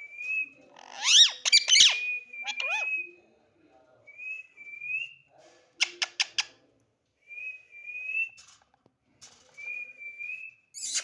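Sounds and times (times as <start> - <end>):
parrot chirps: 0.8 - 3.1, 10.8 - 11.0.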